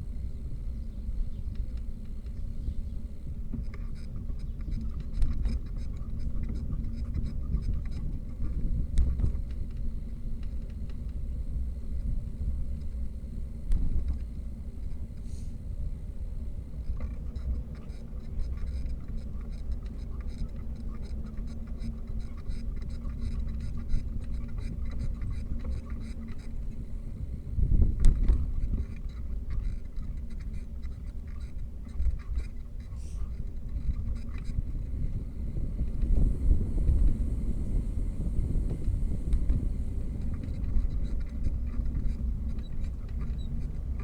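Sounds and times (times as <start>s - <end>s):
low wind: 0.0s - 44.0s.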